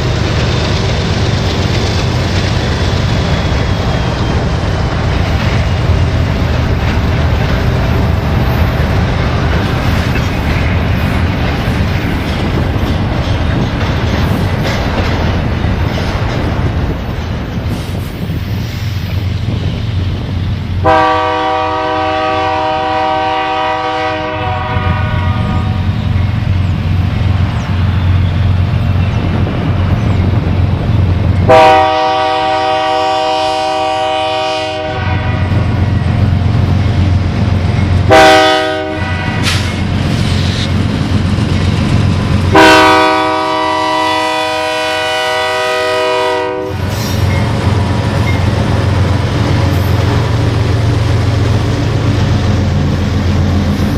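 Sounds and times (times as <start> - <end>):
train rumbling past: 0.0 - 53.9
locomotive air horn chord: 20.8 - 25.9, 31.5 - 35.5, 38.1 - 39.6, 42.5 - 46.9.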